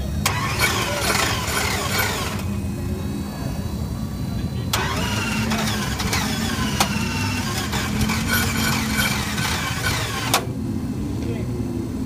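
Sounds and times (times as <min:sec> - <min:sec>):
car engine idling: 0:00.0 - 0:11.8
engine sharp cracks: 0:00.2 - 0:02.5, 0:04.7 - 0:10.5.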